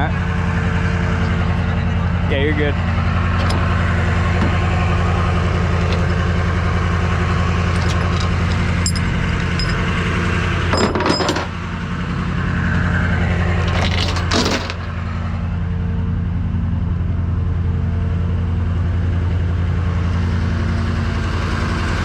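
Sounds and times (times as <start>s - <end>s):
tow truck engine idling: 0.0s - 22.0s
metallic clinks and clanks: 3.4s - 3.7s, 5.5s - 6.6s, 7.6s - 11.6s, 13.6s - 14.9s.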